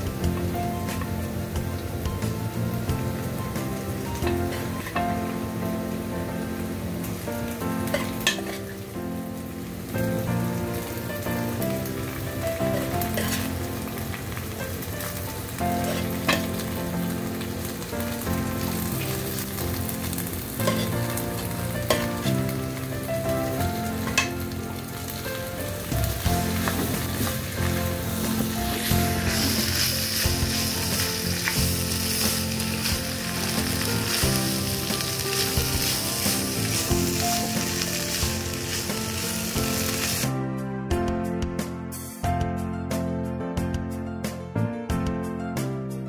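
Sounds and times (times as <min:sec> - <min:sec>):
meat sizzling in a wok: 0:00.0 - 0:40.4
spatula scraping a pan: 0:26.4 - 0:33.0.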